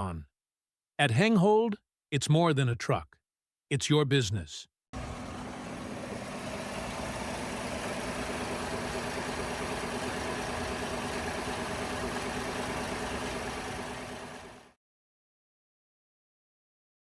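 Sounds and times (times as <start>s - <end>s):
pickup engine idling: 5.0s - 14.7s.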